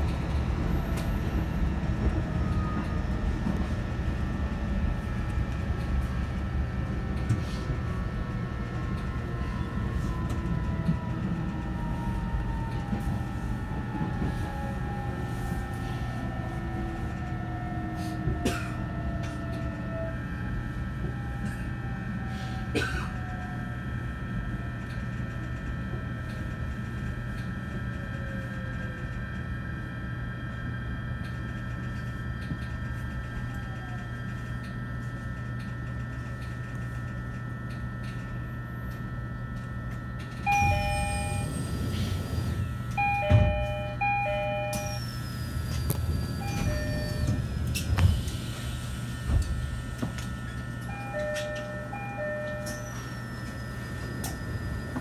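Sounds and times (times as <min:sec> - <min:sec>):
traction motor whine: 0:37.4 - 0:55.0.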